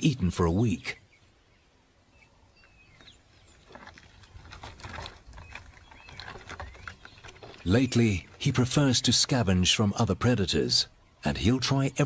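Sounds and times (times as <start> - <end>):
faint bush ambience: 0.0 - 12.0
crackling and rustling vegetation: 0.4 - 12.0
bird chirps: 0.6 - 4.0, 5.3 - 8.4.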